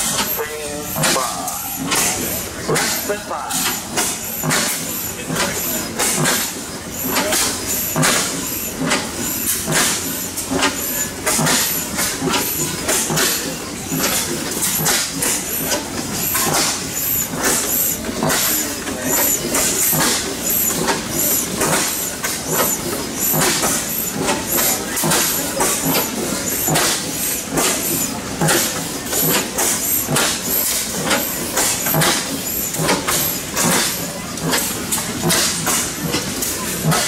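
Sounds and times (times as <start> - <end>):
engine exhaust beats with hiss: 0.0 - 37.0.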